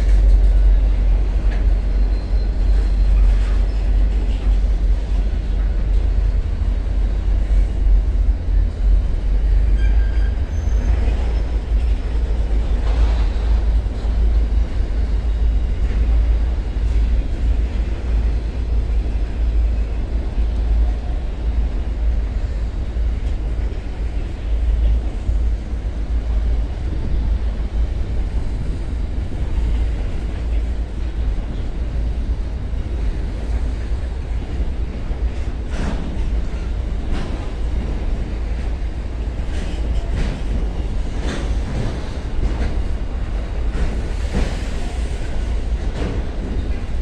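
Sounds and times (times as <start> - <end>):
freight train rumbling past: 0.0 - 47.0
train wheels clicking: 32.8 - 47.0.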